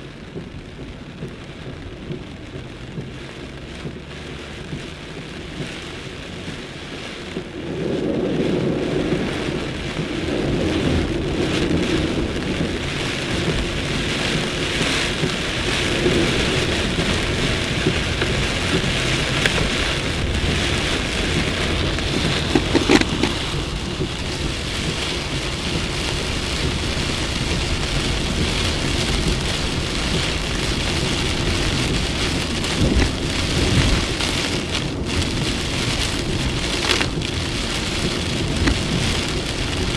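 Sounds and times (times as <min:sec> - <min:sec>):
heavy rain pouring: 0:00.0 - 0:39.9
thunder rumbling: 0:00.0 - 0:39.9.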